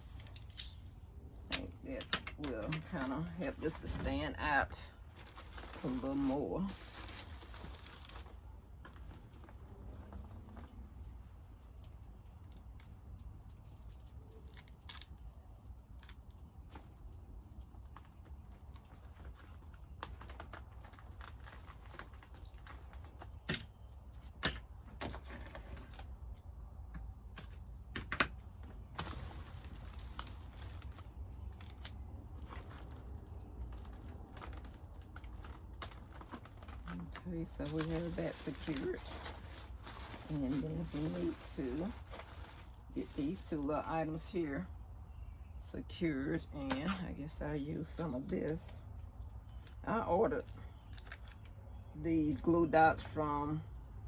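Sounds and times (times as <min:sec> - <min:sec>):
low steady hum: 0:00.0 - 0:54.0
paper handling: 0:28.8 - 0:43.7.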